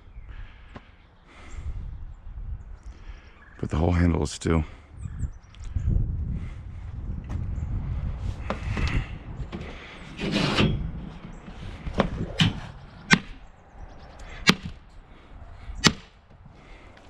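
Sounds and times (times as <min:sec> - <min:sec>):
scrap metal knocks and clanks: 0:08.4 - 0:13.3.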